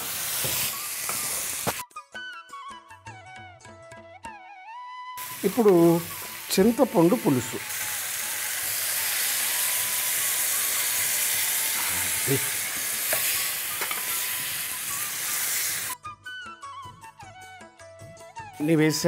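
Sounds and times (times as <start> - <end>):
vegetables sizzling in oil: 0.0 - 1.8, 5.2 - 16.0
background music: 0.3 - 19.0.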